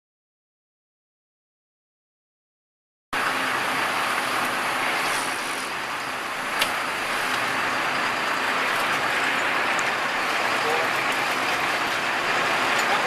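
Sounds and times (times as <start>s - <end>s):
wind: 3.1s - 13.0s
boat engine drone: 3.2s - 13.0s
rushing water: 3.2s - 13.0s.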